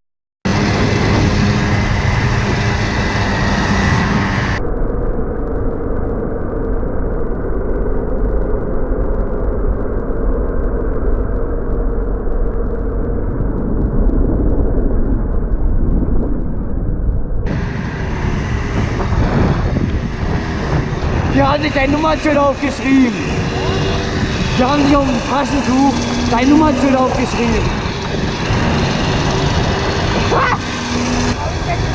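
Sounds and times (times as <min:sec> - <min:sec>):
wind rumble: 0:00.4 - 0:31.9
motorcycle engine running: 0:00.5 - 0:04.6, 0:17.4 - 0:31.9.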